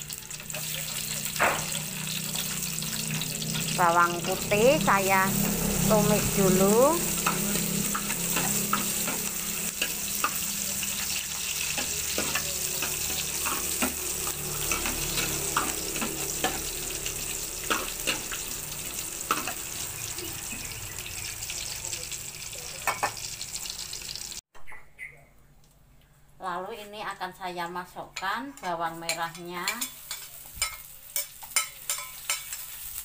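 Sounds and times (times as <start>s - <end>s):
garlic sizzling in hot oil: 0.0s - 24.4s, 28.8s - 33.0s
spatula scraping a pan: 7.0s - 18.5s, 28.6s - 33.0s.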